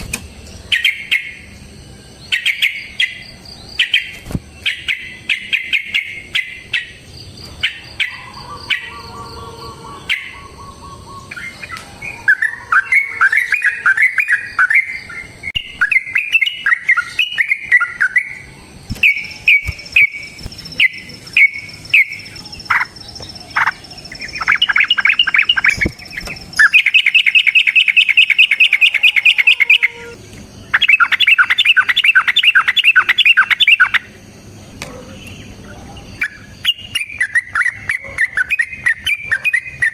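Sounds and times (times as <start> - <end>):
bulbul singing: 0.2 - 34.4, 35.3 - 39.9
rapid bird trills: 2.3 - 34.2.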